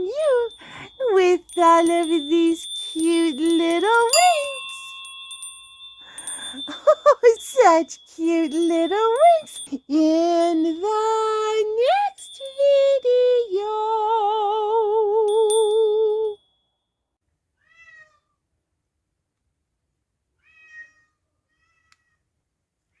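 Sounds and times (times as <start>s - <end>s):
cat meowing: 17.6s - 18.3s, 20.4s - 22.2s.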